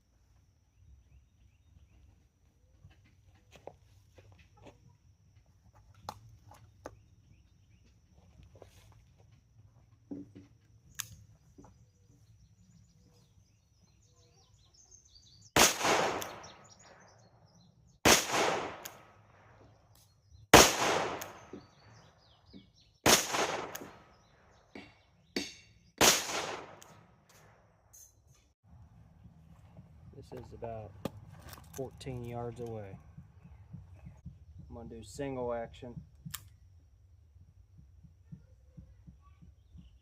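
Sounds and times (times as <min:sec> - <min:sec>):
revolver shots with echo: 0:15.6 - 0:16.8, 0:18.1 - 0:19.0.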